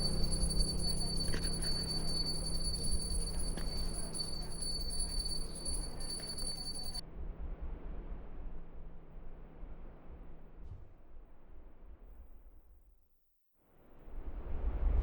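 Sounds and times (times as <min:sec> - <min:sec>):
music with jingling bells: 0:00.0 - 0:07.0
steady high whine: 0:00.0 - 0:07.0.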